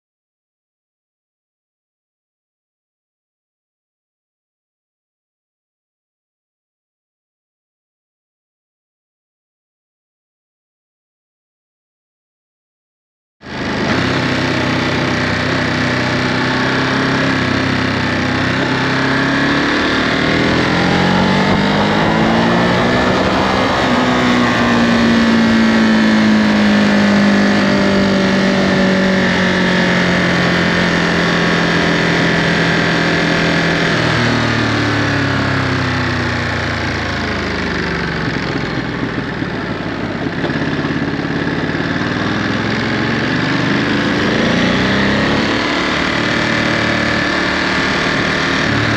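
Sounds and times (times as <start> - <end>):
motorcycle engine revving: 13.4 - 48.9.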